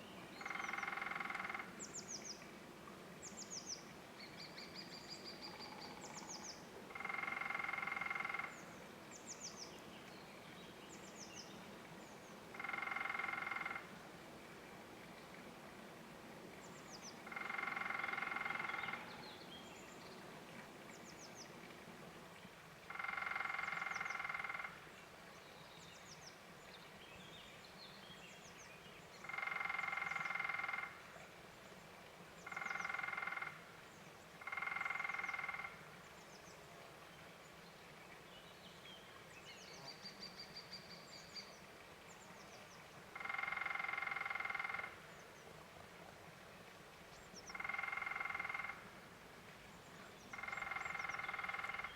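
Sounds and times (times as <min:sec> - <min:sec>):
woodpecker drumming on wood: 0:00.4 - 0:01.7, 0:07.0 - 0:08.5, 0:12.6 - 0:13.9, 0:17.3 - 0:19.0, 0:22.9 - 0:24.7, 0:29.3 - 0:30.9, 0:32.5 - 0:33.5, 0:34.5 - 0:35.8, 0:43.2 - 0:45.0, 0:47.5 - 0:48.8, 0:50.3 - 0:51.9.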